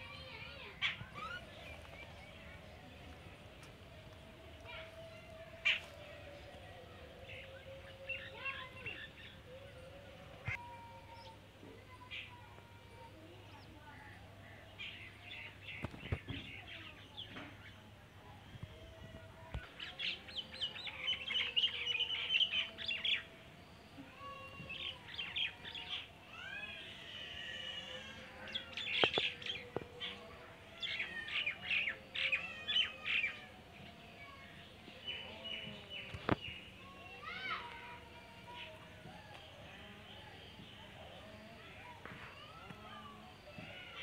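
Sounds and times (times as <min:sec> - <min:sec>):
birds chirping: 0:13.2 - 0:44.0.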